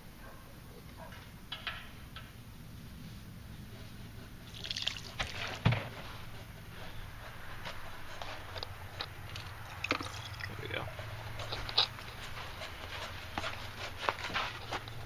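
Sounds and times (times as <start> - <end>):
petrol trickling: 4.4 - 5.6, 9.0 - 13.7.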